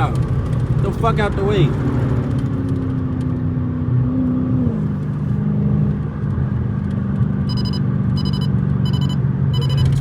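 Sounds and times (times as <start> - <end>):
car engine droning in cabin: 0.0 - 10.0
electronic beep: 7.5 - 10.0.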